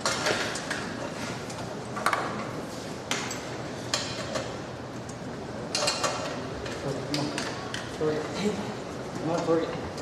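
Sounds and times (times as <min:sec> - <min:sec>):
shop background noise: 0:00.0 - 0:10.0.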